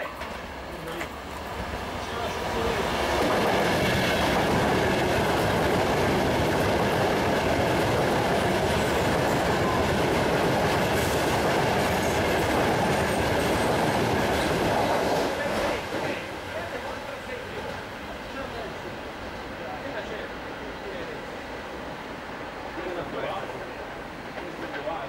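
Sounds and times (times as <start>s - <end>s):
train passing at speed: 0.0s - 25.0s.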